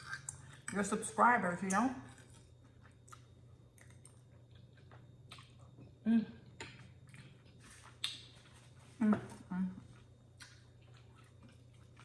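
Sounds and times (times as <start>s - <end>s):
chewing noodles: 10.4s - 12.0s.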